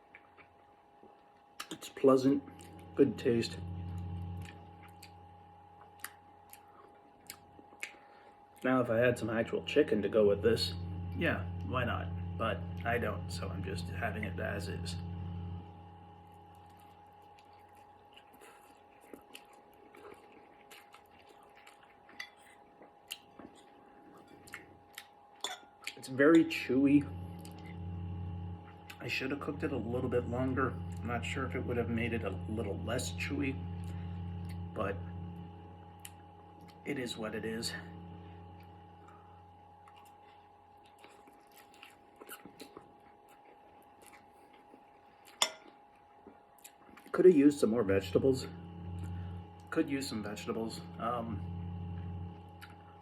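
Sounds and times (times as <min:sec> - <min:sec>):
chewing noodles: 0:00.0 - 0:03.0, 0:03.8 - 0:08.7, 0:16.3 - 0:26.1, 0:38.6 - 0:47.2, 0:52.5 - 0:53.0
faint steady hum: 0:00.0 - 0:53.0
wet mouth clicks: 0:01.6 - 0:01.8.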